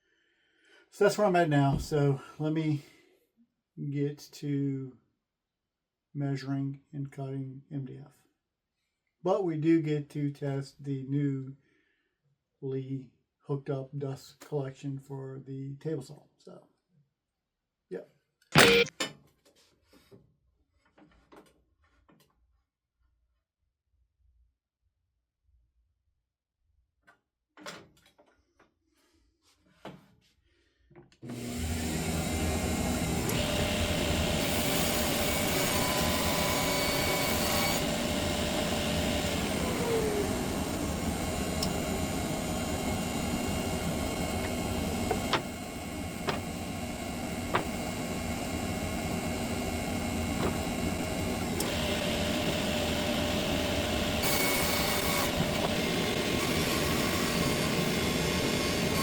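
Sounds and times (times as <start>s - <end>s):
shop vacuum running: 18.6s - 18.9s, 31.2s - 59.0s
table saw cutting wood: 18.6s - 18.9s, 31.3s - 59.0s.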